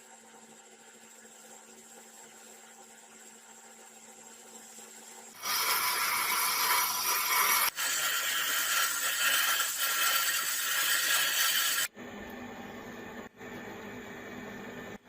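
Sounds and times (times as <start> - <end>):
hissing abrasive scraping tool: 5.4 - 11.9.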